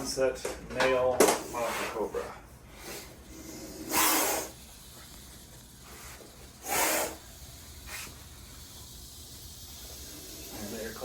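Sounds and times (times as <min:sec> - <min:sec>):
snake hissing: 0:02.7 - 0:11.0.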